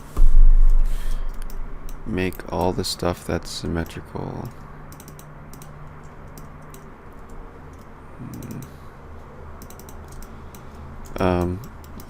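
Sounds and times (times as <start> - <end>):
low hum: 0.0 - 12.0
keyboard and mouse clicking: 3.8 - 8.8, 9.6 - 12.0.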